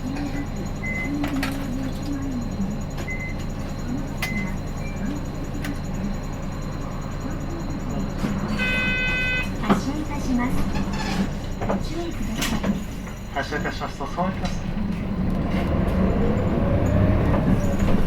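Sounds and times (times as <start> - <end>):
bus engine idling: 0.0 - 18.0
multi-tone beep: 0.3 - 3.6, 4.2 - 9.6.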